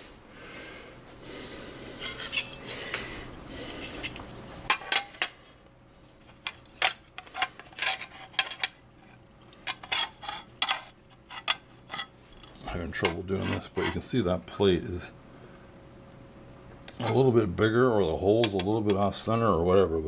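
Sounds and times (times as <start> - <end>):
metal plates rubbing and scraping: 2.0 - 2.6, 6.4 - 14.1
metal plates clinking: 4.0 - 5.6, 6.3 - 8.8.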